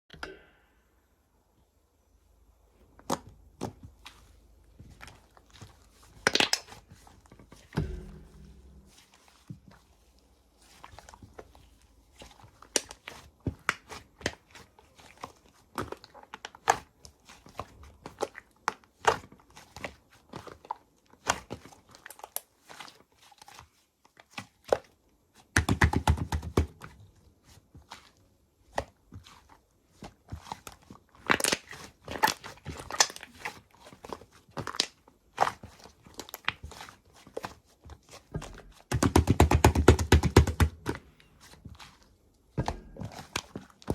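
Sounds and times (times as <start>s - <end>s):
slime squished by hand: 3.0s - 23.6s.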